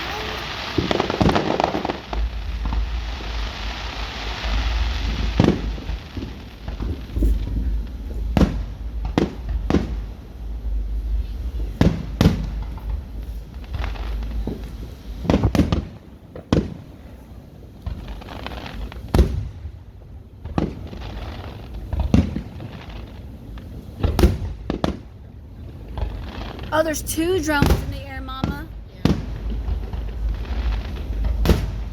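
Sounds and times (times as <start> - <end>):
fireworks booming: 0.0 - 16.9, 17.8 - 19.7, 20.4 - 25.1, 25.9 - 31.9.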